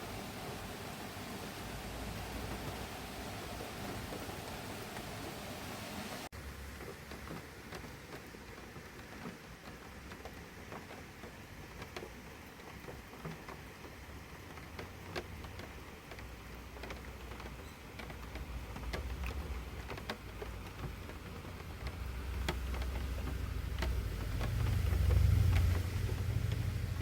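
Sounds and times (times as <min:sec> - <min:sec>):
light ticks and pattering clicks: 0:06.4 - 0:27.0
vehicle engine rumble: 0:18.6 - 0:27.0.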